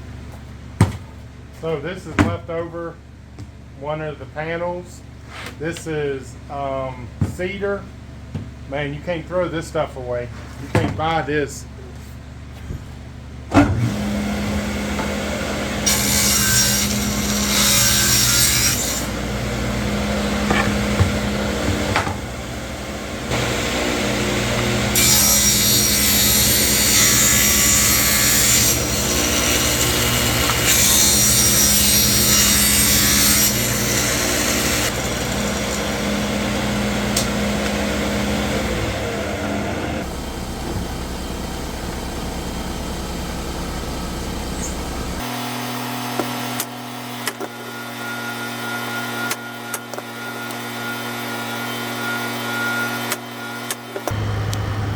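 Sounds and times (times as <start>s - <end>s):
electric saw cutting wood: 13.7s - 54.9s.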